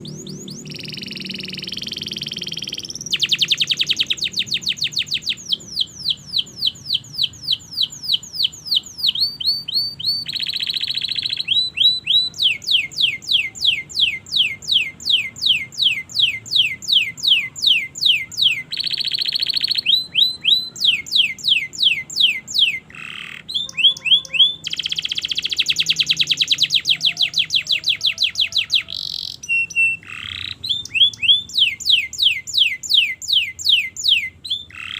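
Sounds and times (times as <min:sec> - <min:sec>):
canary singing: 0:00.0 - 0:34.9.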